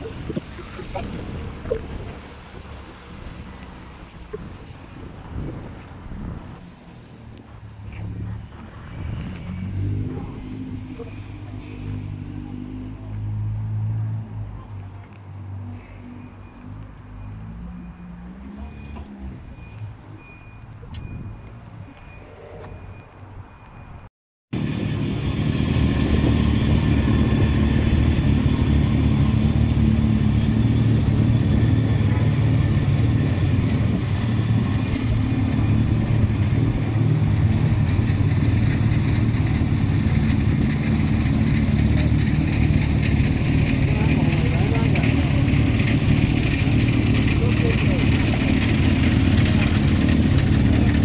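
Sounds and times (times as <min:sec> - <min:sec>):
car engine idling: 0:35.1 - 0:51.0.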